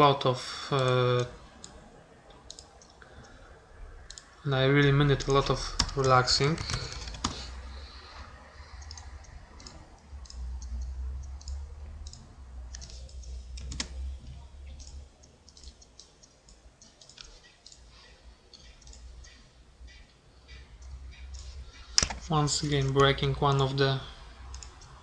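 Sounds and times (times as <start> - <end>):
steady low hum: 0.0 - 25.0
mouse and keyboard clicks: 5.2 - 7.5, 8.8 - 17.9, 21.3 - 23.6.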